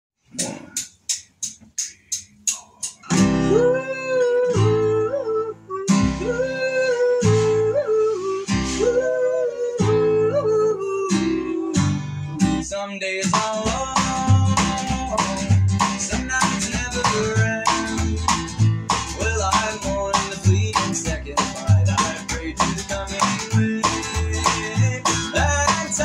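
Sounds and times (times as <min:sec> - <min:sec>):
quick sharp clicks: 0:00.3 - 0:03.1
guitar bending melody: 0:02.8 - 0:12.7, 0:13.6 - 0:26.0
country band playing: 0:03.1 - 0:05.0, 0:13.3 - 0:26.0.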